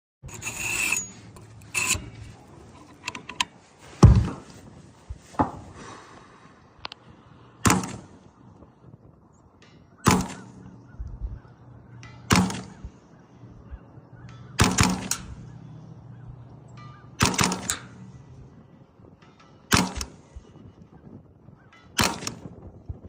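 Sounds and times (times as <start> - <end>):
suppressed rifle shots: 7.6 - 8.2, 10.0 - 10.7, 12.2 - 12.9, 14.5 - 15.5, 17.2 - 18.0, 19.7 - 20.2, 22.0 - 22.5.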